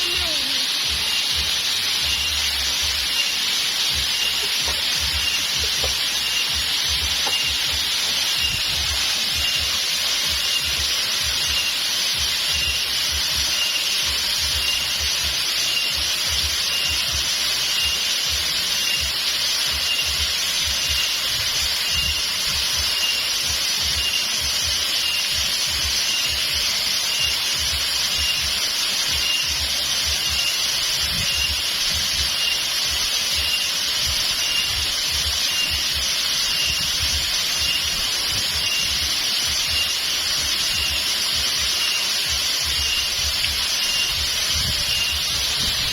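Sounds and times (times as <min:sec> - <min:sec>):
flowing water: 0:00.0 - 0:45.9
thin high chirp: 0:00.0 - 0:45.9
wind rumble on microphone: 0:44.2 - 0:45.9.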